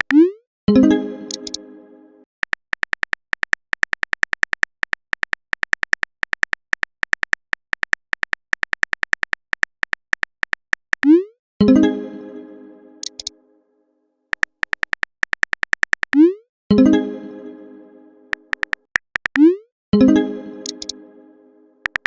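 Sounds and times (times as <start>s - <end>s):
phone keyboard typing clicks: 0.0s - 0.2s, 1.3s - 1.6s, 2.4s - 11.2s, 13.0s - 13.3s, 14.3s - 16.2s, 18.3s - 19.5s, 20.6s - 21.0s.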